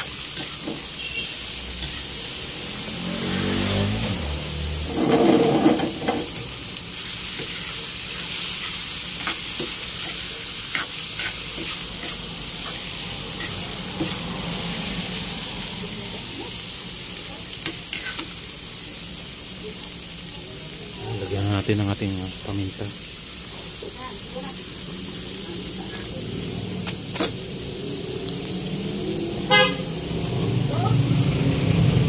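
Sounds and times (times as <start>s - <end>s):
spatula scraping a wok: 0.0s - 15.4s, 17.5s - 18.4s, 25.1s - 26.2s
meat sizzling in hot oil: 0.0s - 32.0s.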